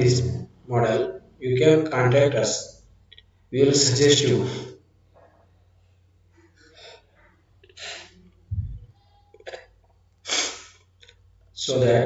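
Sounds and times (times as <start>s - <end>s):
mouth noises: 7.6s - 10.8s.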